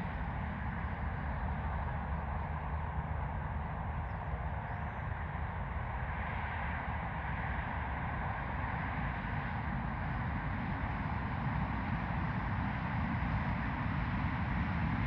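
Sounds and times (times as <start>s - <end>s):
jet engines rumbling with whine: 0.0s - 15.0s.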